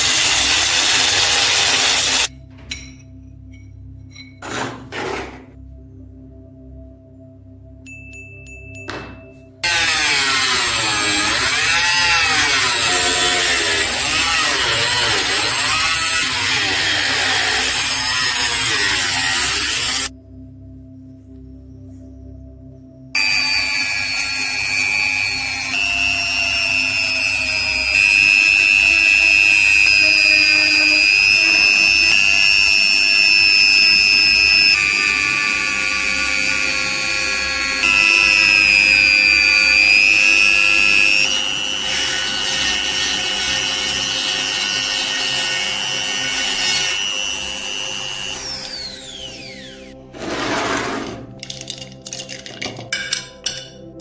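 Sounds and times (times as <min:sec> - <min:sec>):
motor spinning down: 0:00.0 - 0:02.3, 0:09.6 - 0:20.1, 0:23.2 - 0:50.0
power tool whining: 0:00.0 - 0:02.3, 0:09.6 - 0:20.1, 0:23.2 - 0:50.2.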